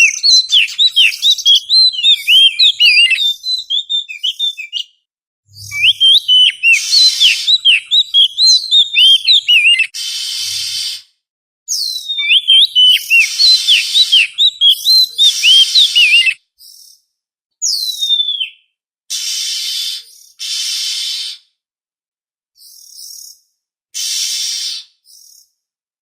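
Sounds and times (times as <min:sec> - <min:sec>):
bird whistled song: 0:00.0 - 0:11.0, 0:11.7 - 0:17.0, 0:17.6 - 0:21.4, 0:22.6 - 0:23.4, 0:24.0 - 0:25.6
bird harsh hissing notes: 0:05.6 - 0:11.2, 0:12.8 - 0:16.4, 0:19.1 - 0:21.6, 0:24.0 - 0:25.4.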